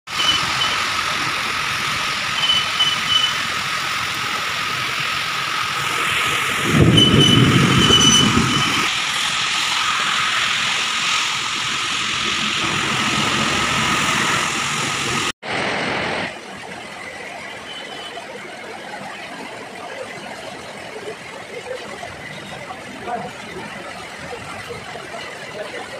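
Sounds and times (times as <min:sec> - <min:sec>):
thin steady whine: 0:00.1 - 0:13.0
heavy rain hissing: 0:00.1 - 0:25.9.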